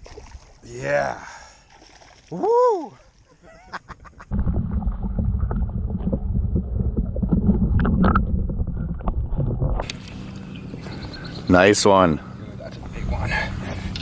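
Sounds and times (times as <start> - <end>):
wind buffeting microphone: 4.3 - 9.9, 12.4 - 14.0.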